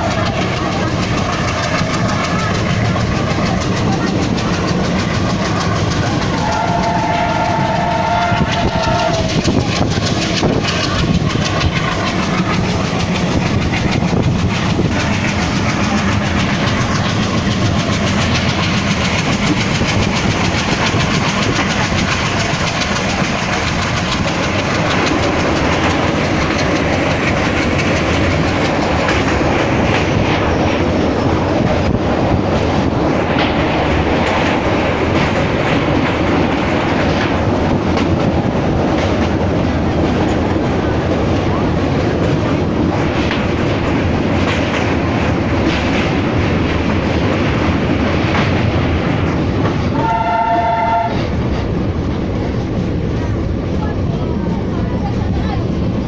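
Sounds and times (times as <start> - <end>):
train wheels clattering over rails: 0.0 - 56.0
train horn: 6.2 - 9.6, 49.9 - 51.3.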